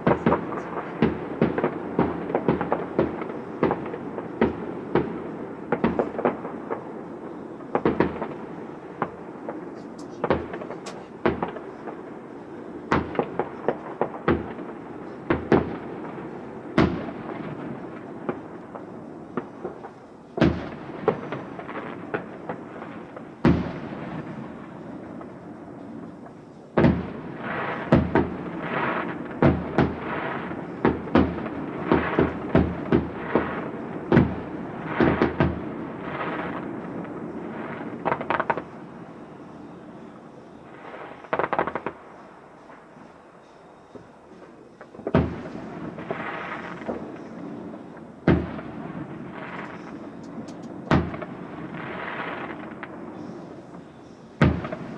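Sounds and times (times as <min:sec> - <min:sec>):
firework bangs: 0:00.0 - 0:54.9
firework crackling: 0:00.0 - 0:54.9.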